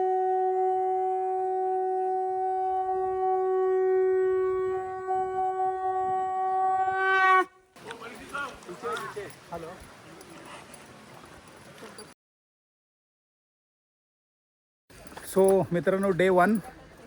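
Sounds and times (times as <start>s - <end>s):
conch shell blown: 0.0s - 7.6s.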